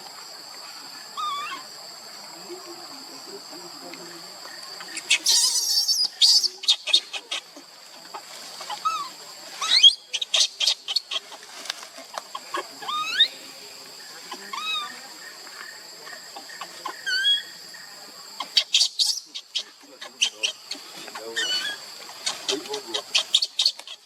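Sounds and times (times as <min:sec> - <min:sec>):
monkey squeaky calls: 0:01.2 - 0:01.6, 0:04.8 - 0:07.4, 0:08.7 - 0:11.3, 0:12.5 - 0:13.4, 0:14.5 - 0:14.9, 0:16.6 - 0:17.5, 0:18.4 - 0:24.0
rustling: 0:11.0 - 0:12.5.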